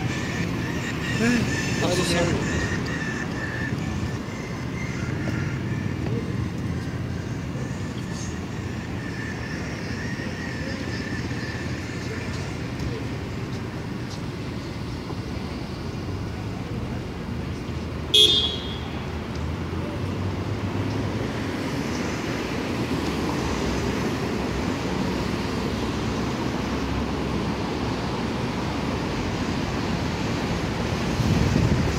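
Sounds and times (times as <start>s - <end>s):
city street traffic: 0.0s - 31.9s
car horn toot: 18.1s - 19.0s.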